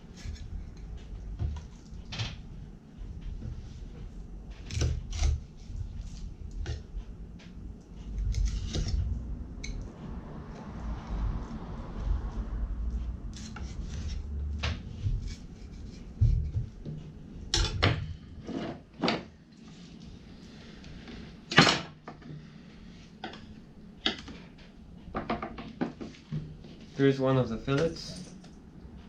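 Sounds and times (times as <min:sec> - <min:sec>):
knife cutting and scraping fish: 0:00.0 - 0:00.9, 0:04.5 - 0:06.8, 0:08.2 - 0:09.0, 0:14.9 - 0:16.6.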